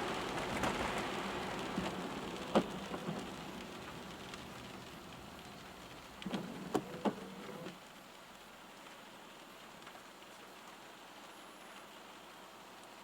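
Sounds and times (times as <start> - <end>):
raindrops ticking: 0.0 - 8.0
rain hissing on a car: 0.0 - 13.0.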